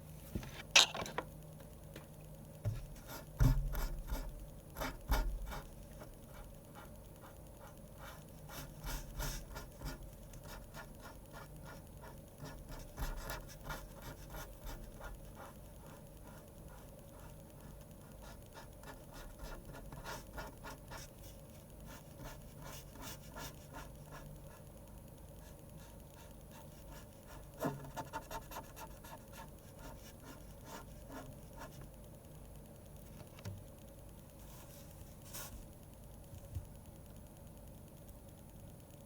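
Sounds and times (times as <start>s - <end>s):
pen scratching on paper: 2.7s - 21.2s, 21.8s - 24.6s, 25.8s - 31.8s.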